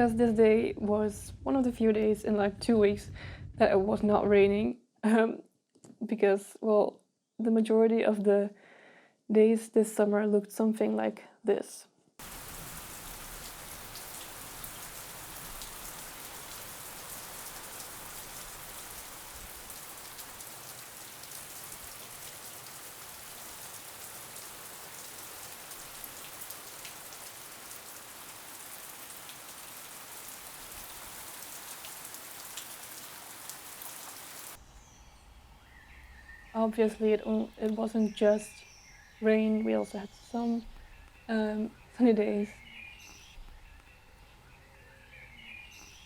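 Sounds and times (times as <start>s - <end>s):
steady rain falling: 12.2s - 34.6s.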